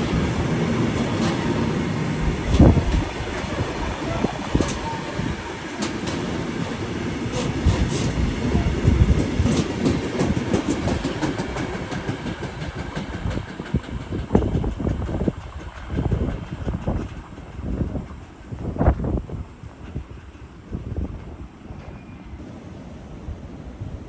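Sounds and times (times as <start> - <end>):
wheels clicking over rail joints: 0.0 - 18.6
train rumbling past: 0.0 - 24.0.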